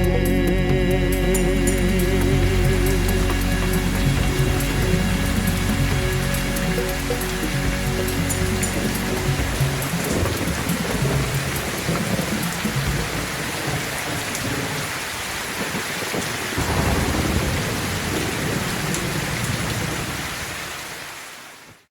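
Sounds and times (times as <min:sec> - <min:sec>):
heavy rain: 0:00.0 - 0:21.9
rolling thunder: 0:07.9 - 0:20.8.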